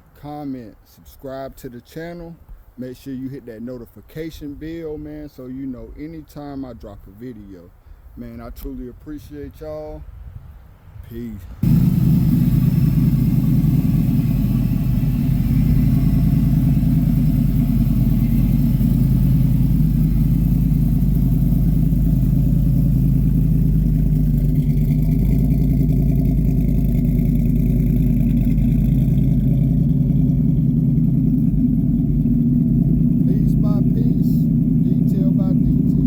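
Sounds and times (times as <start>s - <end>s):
car engine running: 11.6s - 36.0s.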